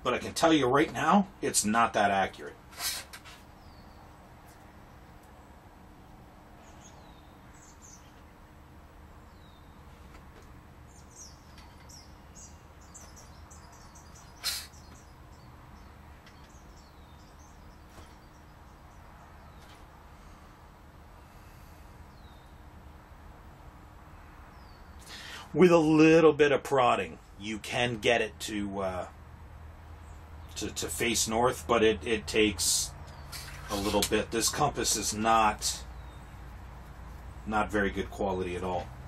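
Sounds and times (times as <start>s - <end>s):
steady low hum: 0.0s - 39.0s
faint high bird chirps: 10.9s - 19.8s.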